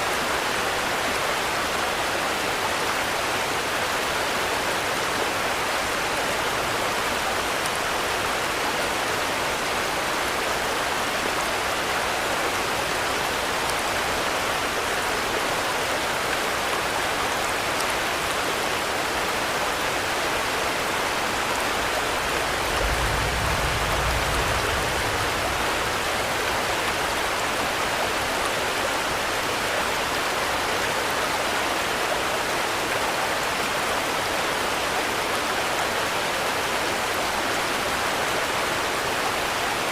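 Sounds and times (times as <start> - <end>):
steady rainfall: 0.0 - 39.9
low rumble: 22.4 - 26.9.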